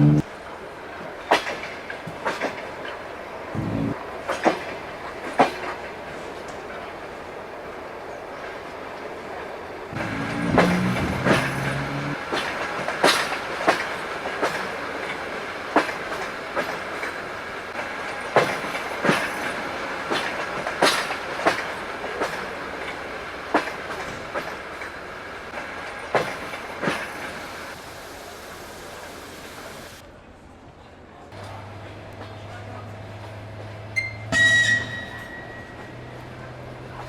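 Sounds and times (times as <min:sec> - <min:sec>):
train rumble: 0:00.0 - 0:30.1, 0:31.4 - 0:37.0
brief low tone: 0:03.6 - 0:04.0
train wheels clicking over rail joint: 0:10.0 - 0:27.8.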